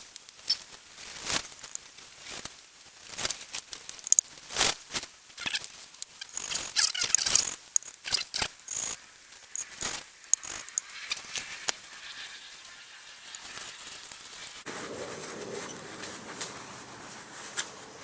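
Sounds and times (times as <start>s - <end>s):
valve grinding paste rasping: 6.2s - 14.6s.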